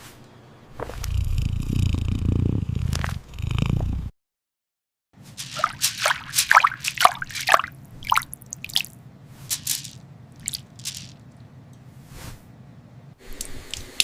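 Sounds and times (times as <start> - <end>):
low steady hum: 5.2 - 14.0
wet drips and squelches: 5.4 - 11.5, 13.3 - 14.0.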